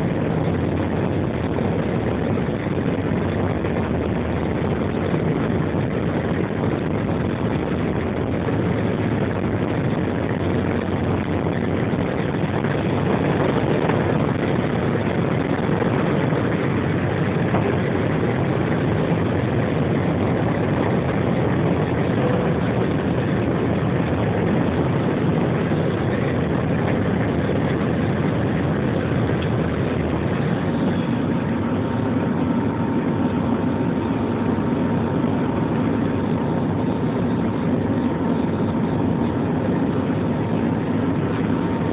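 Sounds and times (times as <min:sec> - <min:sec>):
jet engines and rushing airflow: 0:00.0 - 0:41.9.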